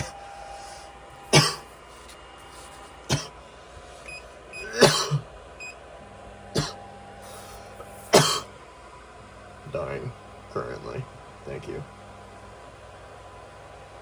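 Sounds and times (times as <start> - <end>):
man coughing: 1.2 - 1.8, 3.0 - 3.4, 4.6 - 5.3, 6.6 - 6.8, 7.9 - 8.5.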